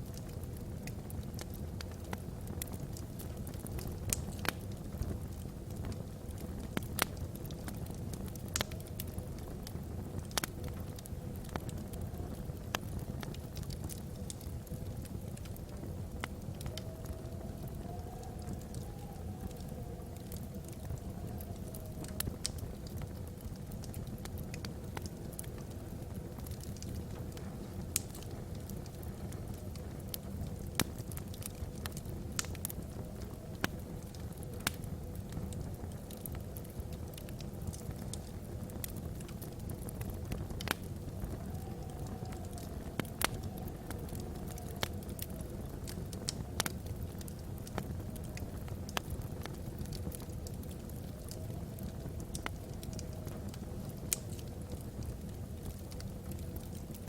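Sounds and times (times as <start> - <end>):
logs burning with crackles and pops: 0.0 - 57.0.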